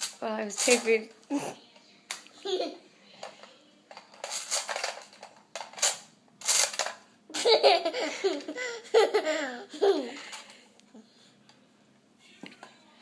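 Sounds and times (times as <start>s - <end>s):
person laughing: 7.3s - 10.4s.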